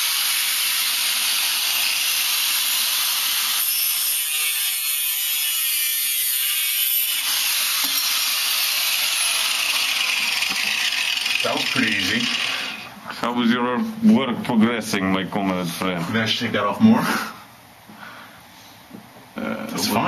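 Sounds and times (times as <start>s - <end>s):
angle grinder cutting metal: 0.0s - 13.0s.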